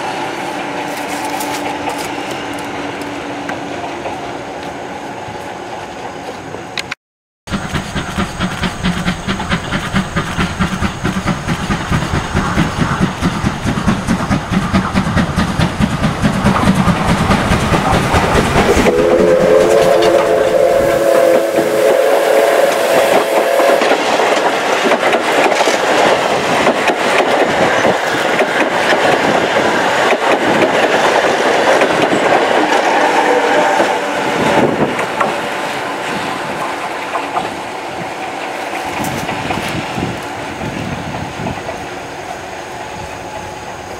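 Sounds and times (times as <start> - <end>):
steam locomotive chuffing: 7.5 - 43.9
steam whistle chord: 18.7 - 24.0, 32.6 - 34.5.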